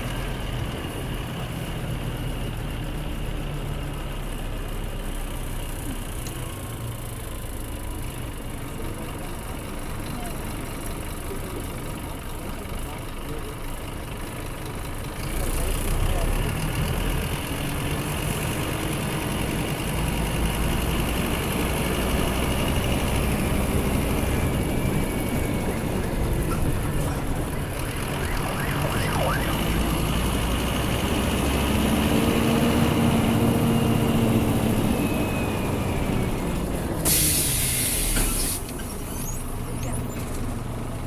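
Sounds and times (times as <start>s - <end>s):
bus diesel engine humming: 0.0s - 41.0s
air brakes hissing: 37.0s - 39.5s.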